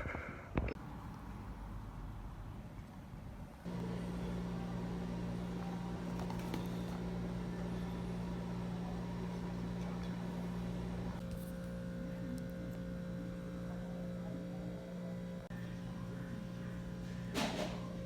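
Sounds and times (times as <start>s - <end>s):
microwave oven humming: 3.6s - 18.0s.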